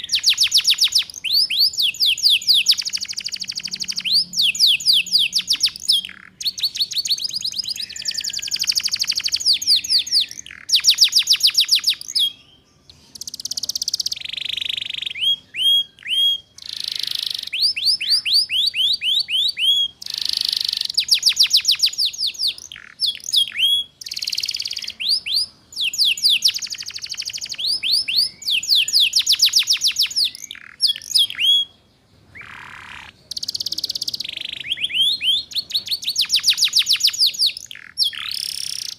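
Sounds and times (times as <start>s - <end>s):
canary singing in fast trills: 0.0s - 38.9s.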